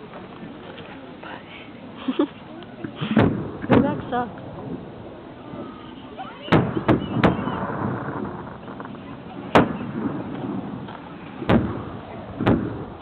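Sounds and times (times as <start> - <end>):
crowd murmur: 0.0 - 13.0
firework shells bursting: 6.5 - 13.0.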